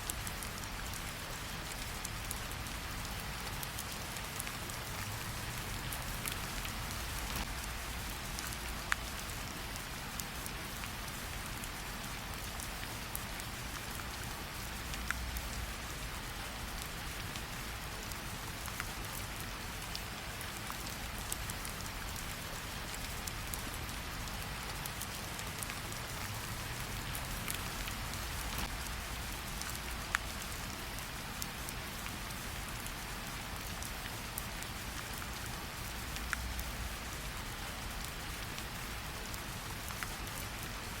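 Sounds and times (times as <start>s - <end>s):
rain hiss: 0.0s - 41.0s
fire crackling: 0.1s - 40.8s.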